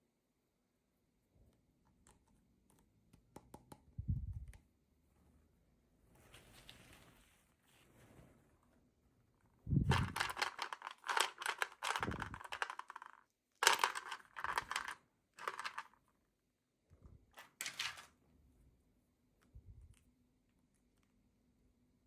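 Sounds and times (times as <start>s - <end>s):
plastic packaging crinkling and clicking: 9.9s - 16.0s.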